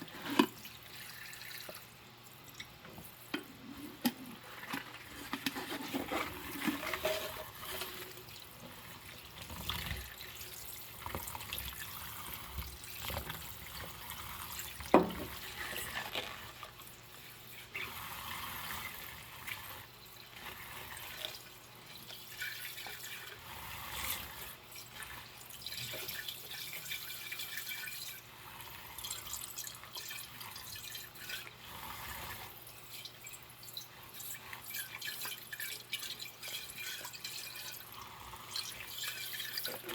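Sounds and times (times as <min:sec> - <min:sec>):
dishes scrubbed and clinking: 0:00.0 - 0:00.7, 0:02.5 - 0:10.4.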